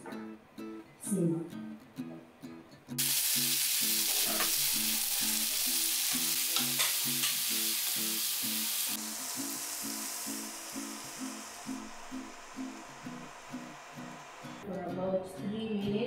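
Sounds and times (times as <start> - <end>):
vegetables sizzling in hot oil: 3.0 - 14.6
spoon knocking on pan: 6.6 - 7.4.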